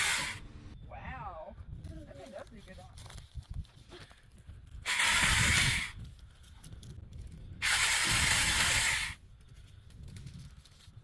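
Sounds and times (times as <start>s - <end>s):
chainsaw cutting wood: 0.0s - 0.7s, 4.8s - 6.0s, 7.6s - 9.2s.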